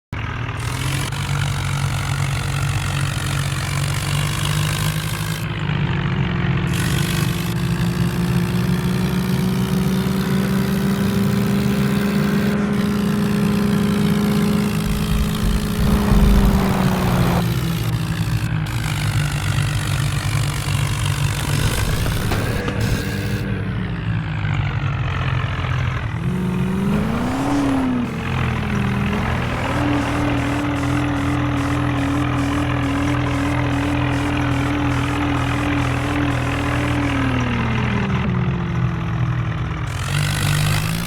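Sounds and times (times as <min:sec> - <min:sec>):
vehicle engine revving: 0:00.2 - 0:41.0
loud low rumble: 0:14.4 - 0:18.8.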